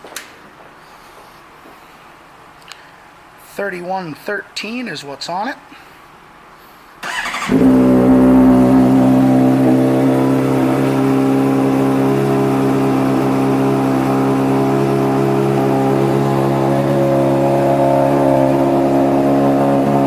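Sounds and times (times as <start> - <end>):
motorcycle engine idling: 7.0 - 20.0.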